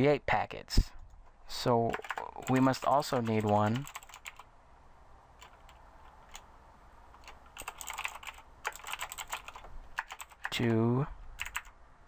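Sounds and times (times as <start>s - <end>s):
typing on computer keyboard: 1.9s - 4.4s, 5.4s - 6.4s, 7.1s - 10.6s, 11.4s - 11.7s.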